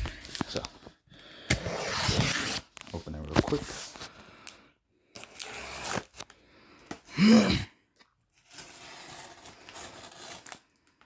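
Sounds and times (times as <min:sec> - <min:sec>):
tape being slit: 0:01.4 - 0:03.6, 0:05.2 - 0:06.3
cardboard scraping and tearing: 0:01.5 - 0:04.0, 0:05.3 - 0:06.2, 0:08.3 - 0:10.6.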